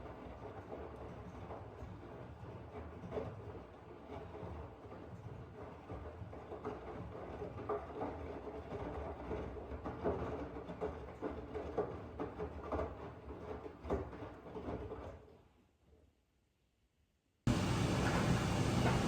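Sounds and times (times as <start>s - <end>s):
washing machine rumbling: 17.5s - 19.0s.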